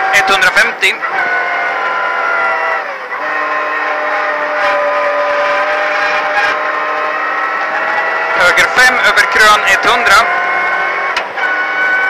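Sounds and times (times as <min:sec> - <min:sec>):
car engine revving hard: 0:00.0 - 0:12.0.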